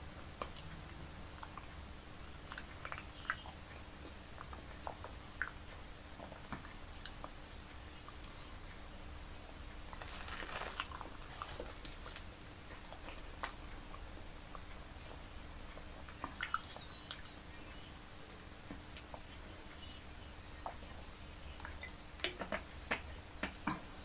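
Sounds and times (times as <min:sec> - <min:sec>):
person chewing banana: 0:01.4 - 0:07.4, 0:09.8 - 0:14.8
plastic bottle crackling: 0:09.9 - 0:12.2.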